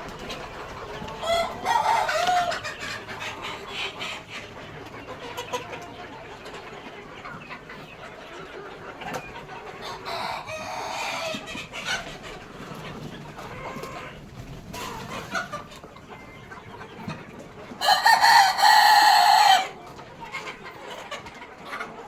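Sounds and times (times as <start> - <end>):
chicken loud drawn-out call: 0.0 - 4.2, 17.8 - 19.8
chickens clucking: 0.0 - 22.0.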